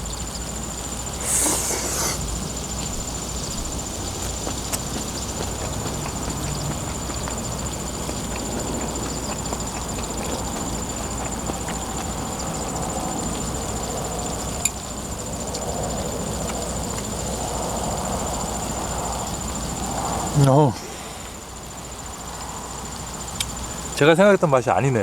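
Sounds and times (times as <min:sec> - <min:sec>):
high insect trill: 0:00.0 - 0:25.0
person chewing food: 0:01.2 - 0:12.7
wet clicks of chewing: 0:01.2 - 0:17.5.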